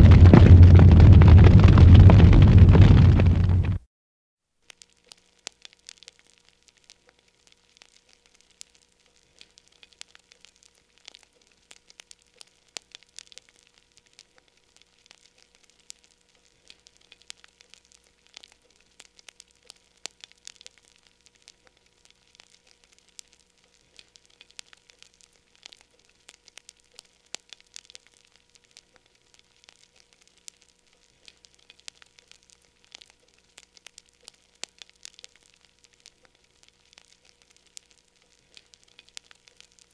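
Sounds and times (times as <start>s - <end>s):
low steady hum: 0.0s - 3.8s
wood fire crackling: 0.0s - 3.8s, 7.7s - 39.9s.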